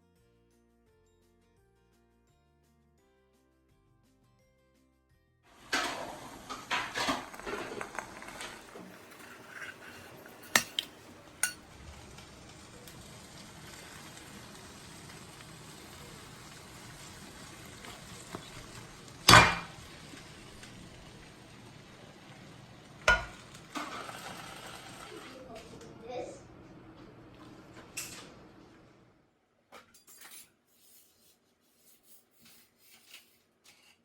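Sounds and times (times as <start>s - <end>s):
utensils and pots clattering: 5.5s - 11.6s, 14.8s - 21.6s, 22.2s - 25.4s, 27.6s - 28.4s, 29.8s - 30.6s.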